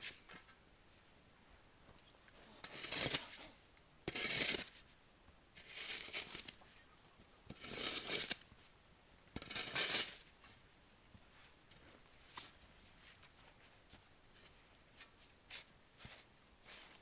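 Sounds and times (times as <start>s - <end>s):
rustling scraping strokes: 2.5s - 3.5s, 5.6s - 6.9s, 7.5s - 8.8s, 9.4s - 10.3s, 11.3s - 17.0s.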